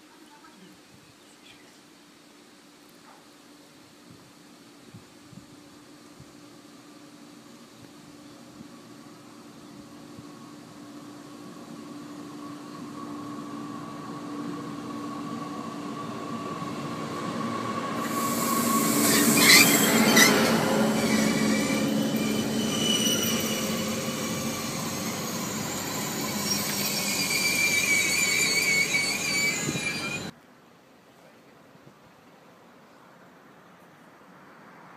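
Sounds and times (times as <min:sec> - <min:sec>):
train passing: 0:05.8 - 0:30.4, 0:34.0 - 0:34.9
wheels and brakes squealing: 0:18.0 - 0:30.3.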